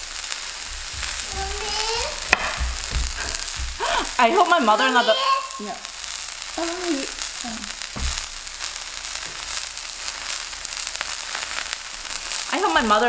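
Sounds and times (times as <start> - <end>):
zucchini sizzling in oil: 0.0 - 13.0
low thump: 2.2 - 4.1, 7.9 - 8.5.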